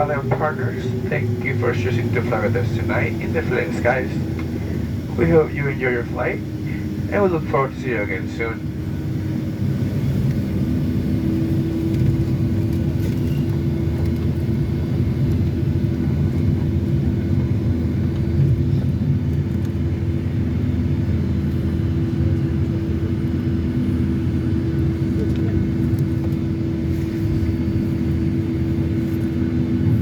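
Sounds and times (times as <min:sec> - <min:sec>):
aircraft engines idling: 0:00.0 - 0:30.0
constant cabin hum: 0:00.0 - 0:30.0.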